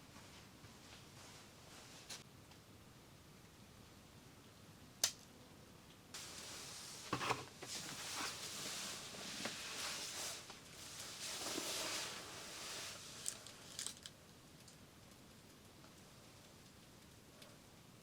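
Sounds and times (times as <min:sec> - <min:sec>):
rustling and crinkling handling: 0:06.2 - 0:14.1.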